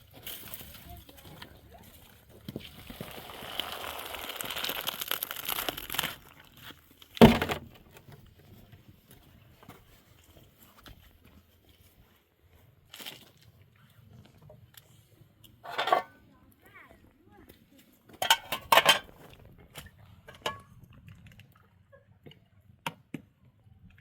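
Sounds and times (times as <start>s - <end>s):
rustling crinkling with clicks: 0.0s - 16.2s
loud thump: 7.2s - 7.7s.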